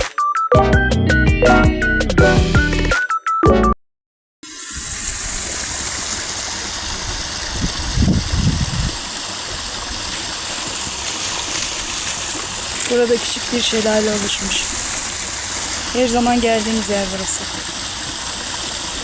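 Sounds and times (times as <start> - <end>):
music: 0.0 - 3.8
water rushing over small waterfall: 4.5 - 19.0.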